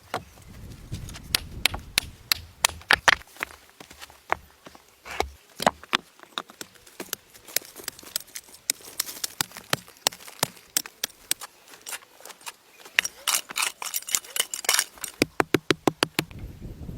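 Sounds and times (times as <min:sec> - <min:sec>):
rapid sharp clicks and knocks: 0:14.6 - 0:16.3.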